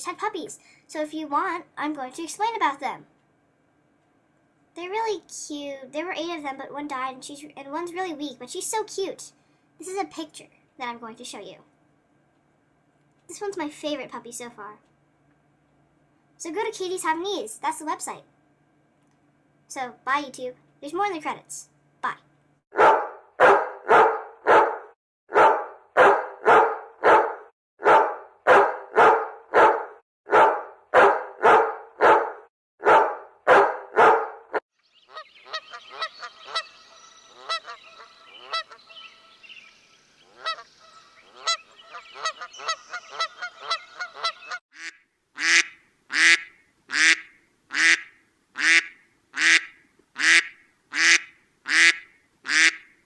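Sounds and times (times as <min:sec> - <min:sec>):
dog yipping: 0:22.8 - 0:34.3
dog barking: 0:22.8 - 0:34.6.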